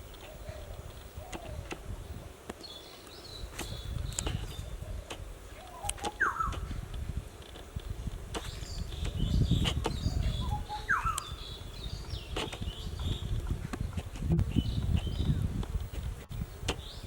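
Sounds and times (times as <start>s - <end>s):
birds calling: 0.0s - 6.9s, 8.3s - 15.5s
high bird chirps: 5.6s - 6.7s, 8.4s - 13.3s.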